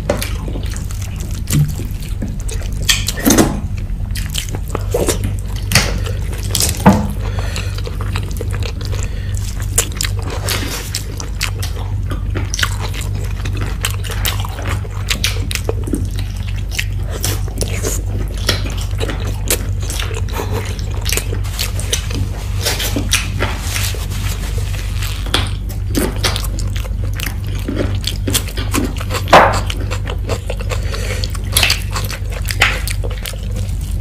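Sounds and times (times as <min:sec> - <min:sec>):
steady low hum: 0:00.0 - 0:34.0
wet chewing and lip smacks: 0:07.5 - 0:23.4, 0:25.3 - 0:34.0.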